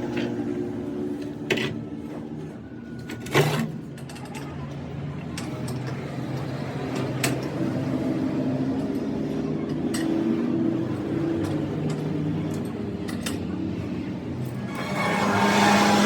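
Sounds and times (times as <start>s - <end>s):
machine humming: 14.6s - 16.0s.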